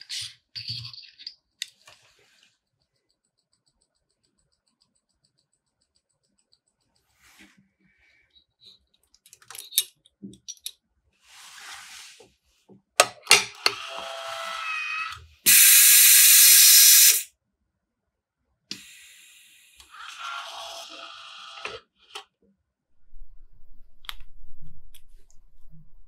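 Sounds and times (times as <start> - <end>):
loud hiss of air: 15.5 - 17.3.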